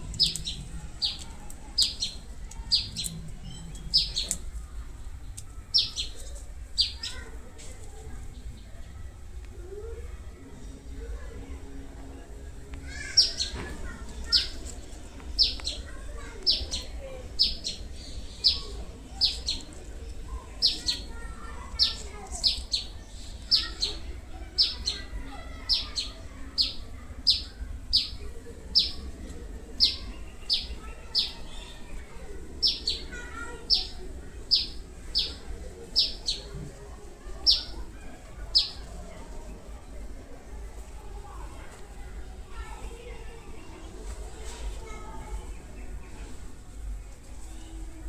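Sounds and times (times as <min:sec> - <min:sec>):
bird calling: 0:15.4 - 0:31.8.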